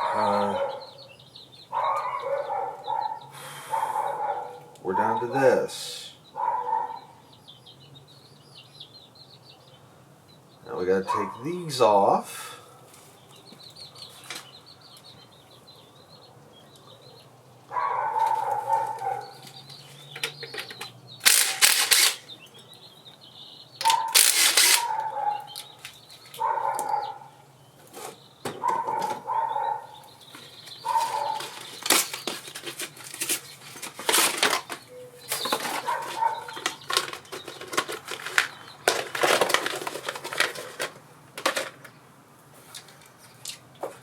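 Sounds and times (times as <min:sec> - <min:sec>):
short loud noisy bursts: 0:21.2 - 0:22.2
dog whining: 0:35.8 - 0:36.7.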